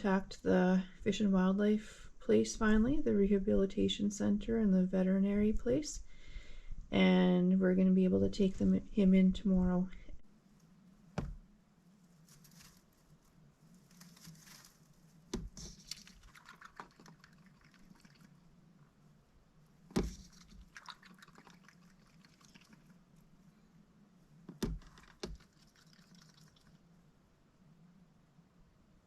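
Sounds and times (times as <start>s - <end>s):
duck splashing in water: 15.4s - 18.4s, 19.9s - 22.9s, 24.6s - 26.8s.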